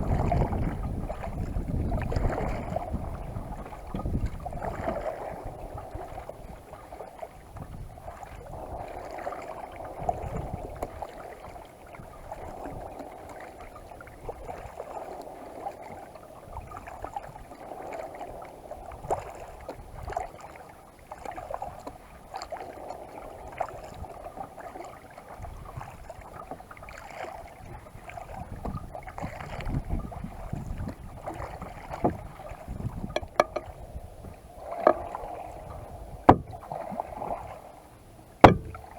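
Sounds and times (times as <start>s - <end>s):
wind gusts on microphone: 0.0s - 13.1s, 27.6s - 37.8s
paddle blades dipping: 0.0s - 38.9s
water washing against hull: 0.0s - 38.9s.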